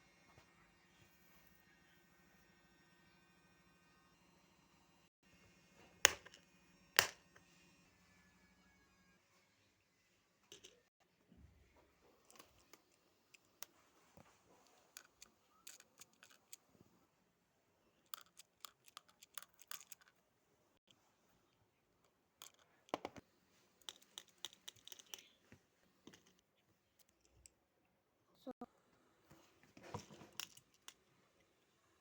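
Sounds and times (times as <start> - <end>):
small objects clicking and crinkling: 14.6 - 16.7, 18.0 - 20.2, 22.0 - 23.2, 23.8 - 27.6, 30.0 - 31.1.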